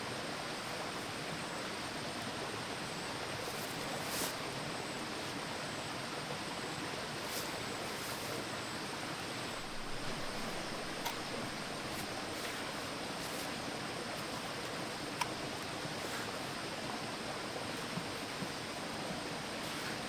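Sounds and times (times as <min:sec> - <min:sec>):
faint sharp clicks: 0:14.6 - 0:15.7.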